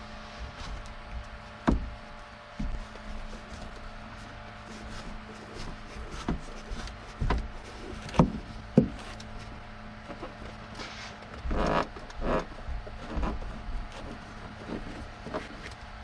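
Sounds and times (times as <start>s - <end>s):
rustling scrapes: 0.0s - 1.6s, 2.6s - 15.8s
steady low hum: 0.0s - 16.0s
sharp knocks and clunks: 0.4s - 2.0s, 6.1s - 9.1s.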